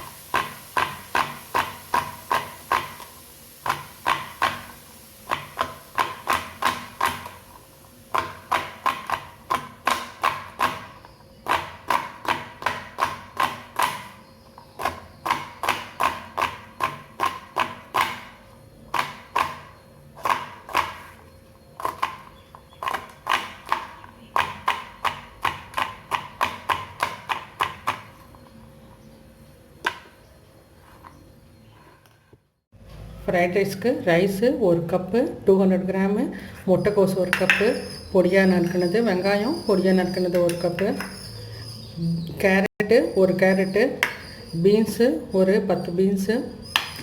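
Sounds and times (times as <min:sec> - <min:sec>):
knife chopping on cutting board: 0:05.3 - 0:07.4, 0:08.1 - 0:14.2, 0:14.8 - 0:21.2.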